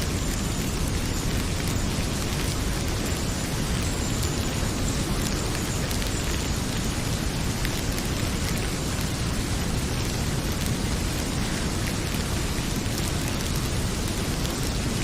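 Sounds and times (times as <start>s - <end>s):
faint wood fire crackles: 0.0s - 15.0s
heavy rain pouring: 0.0s - 15.0s.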